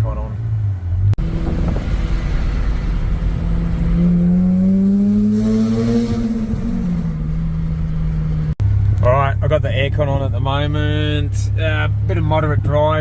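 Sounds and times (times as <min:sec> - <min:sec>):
rotary car engine accelerating: 0:00.5 - 0:09.1.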